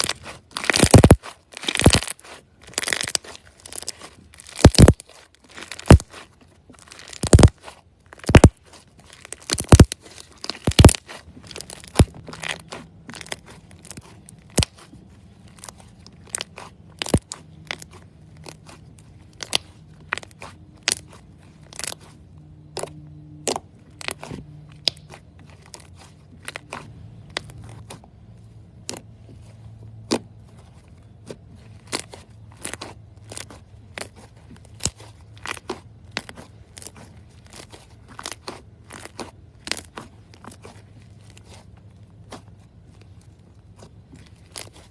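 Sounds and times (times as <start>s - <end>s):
slime squeezed crackling pops: 0.0s - 6.2s, 6.8s - 14.9s.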